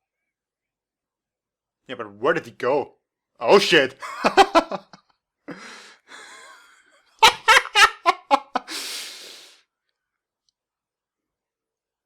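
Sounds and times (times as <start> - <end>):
man laughing: 3.6 - 9.0
breathy exhale: 5.5 - 6.6, 8.7 - 9.6.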